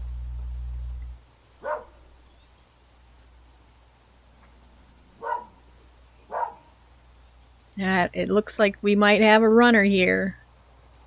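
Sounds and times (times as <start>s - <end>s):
low hum: 0.0s - 11.0s
faint bird chirps: 0.3s - 7.8s
dog barking: 1.6s - 2.1s, 5.2s - 5.6s, 6.2s - 6.7s.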